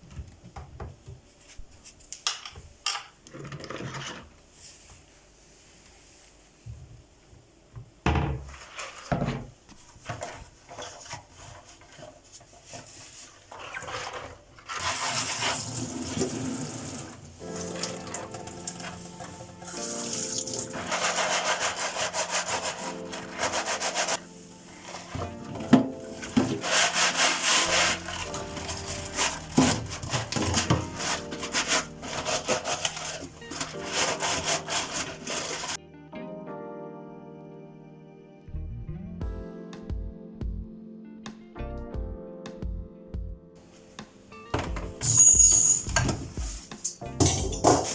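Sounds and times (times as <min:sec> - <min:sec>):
scrubbing kitchen surface: 0:10.0 - 0:35.8, 0:45.1 - 0:47.9
faint background music: 0:13.8 - 0:47.9
tap water running into sink: 0:14.8 - 0:20.9
clicks and rubbing: 0:24.8 - 0:35.8.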